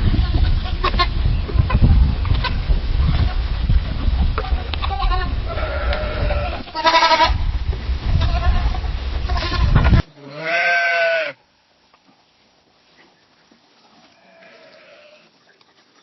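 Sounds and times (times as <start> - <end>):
sheep bleating: 4.8 - 7.4, 8.2 - 11.4, 14.2 - 15.3.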